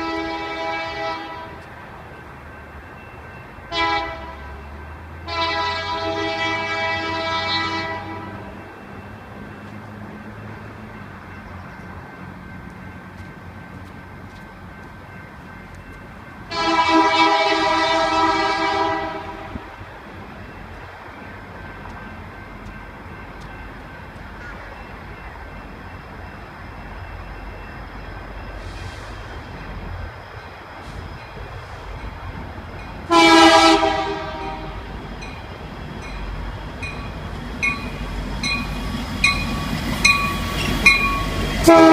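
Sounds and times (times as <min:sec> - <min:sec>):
locomotive air horn blast: 0:00.0 - 0:01.6, 0:03.7 - 0:04.4, 0:05.3 - 0:08.4, 0:16.5 - 0:19.7, 0:33.1 - 0:34.9, 0:41.6 - 0:41.9
moving train rumble: 0:00.0 - 0:41.9.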